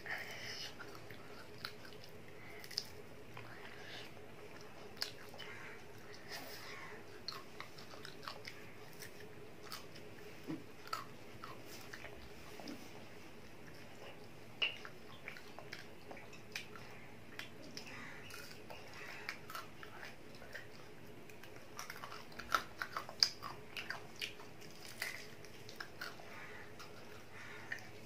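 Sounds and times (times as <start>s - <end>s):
child chewing crunchy food: 0.0s - 28.0s.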